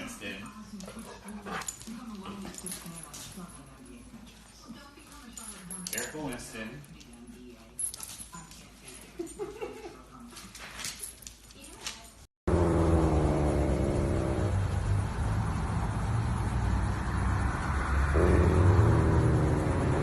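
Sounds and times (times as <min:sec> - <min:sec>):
low vehicle rumble: 0:12.5 - 0:20.0.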